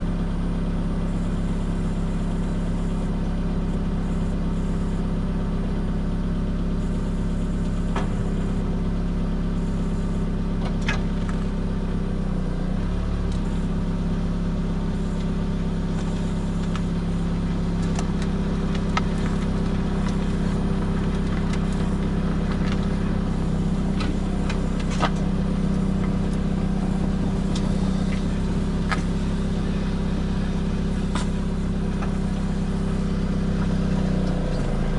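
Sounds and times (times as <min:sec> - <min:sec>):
car road noise drone: 0:00.0 - 0:34.9.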